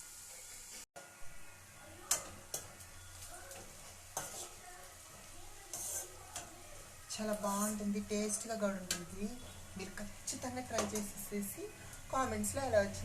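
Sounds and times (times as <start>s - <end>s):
onions sizzling in a pan: 0.0s - 13.0s
spoon scraping a pan: 2.1s - 12.4s.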